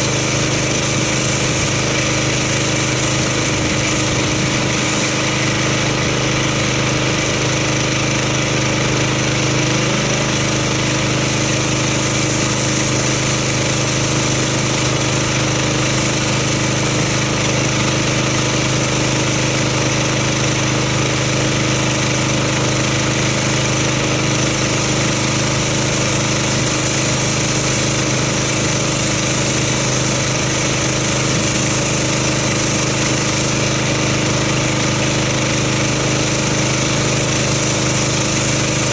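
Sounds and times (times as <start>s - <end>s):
high-pressure water spray hissing: 0.0s - 38.9s
pressure washer engine hum: 0.0s - 38.9s.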